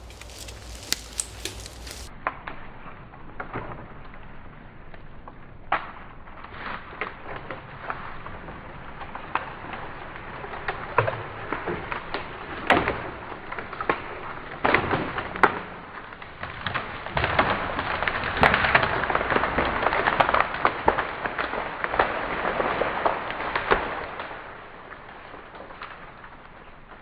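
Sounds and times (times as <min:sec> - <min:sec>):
dry branches cracking and snapping: 0:00.0 - 0:02.1.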